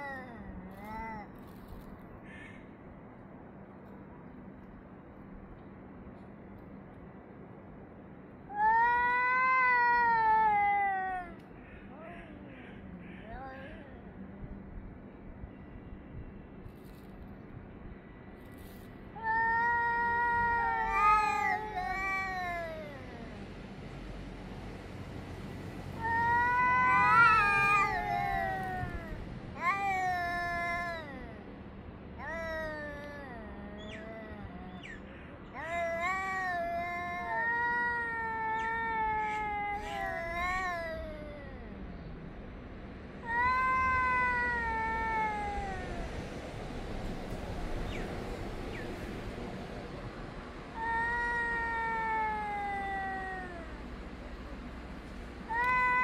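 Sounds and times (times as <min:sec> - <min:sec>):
cats yowling: 0:08.6 - 0:11.4, 0:19.2 - 0:23.6, 0:26.0 - 0:31.4, 0:32.2 - 0:42.0, 0:43.2 - 0:46.2, 0:50.8 - 0:54.0, 0:55.5 - 0:56.0.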